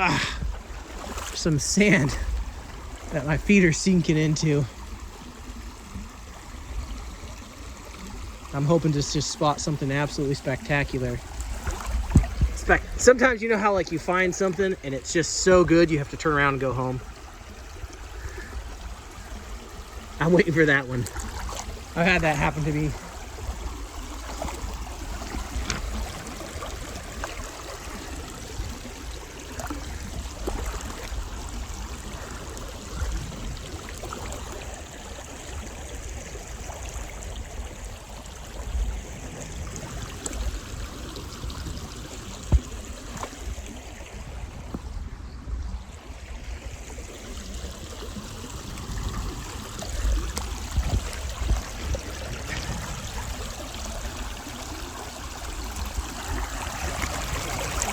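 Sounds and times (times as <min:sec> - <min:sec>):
creek water flowing: 0:00.0 - 0:57.9
small clicks and low bumps: 0:10.4 - 0:13.1, 0:49.8 - 0:53.3.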